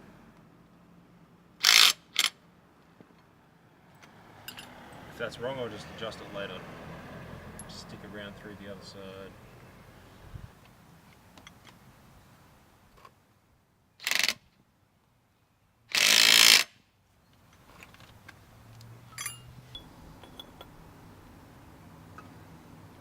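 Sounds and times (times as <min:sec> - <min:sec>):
mechanical bursts from tool work: 0:01.6 - 0:02.3, 0:14.0 - 0:14.4, 0:15.9 - 0:16.7.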